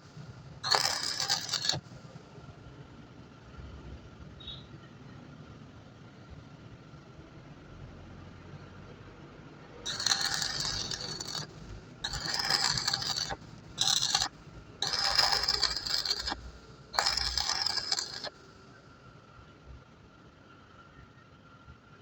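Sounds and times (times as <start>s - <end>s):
metal scraping on metal: 0.6s - 1.9s, 9.9s - 18.4s.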